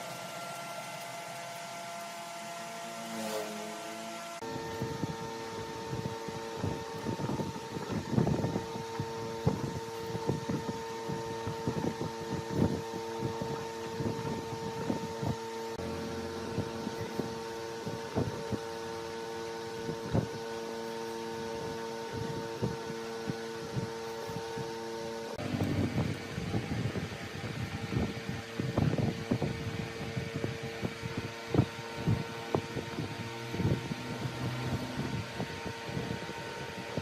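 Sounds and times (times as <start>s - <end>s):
wood lathe electric hum: 0.0s - 37.0s.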